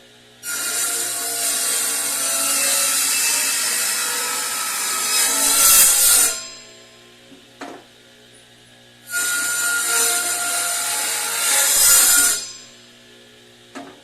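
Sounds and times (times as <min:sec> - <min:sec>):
power tool cutting wood: 0:00.4 - 0:06.6, 0:09.1 - 0:12.6.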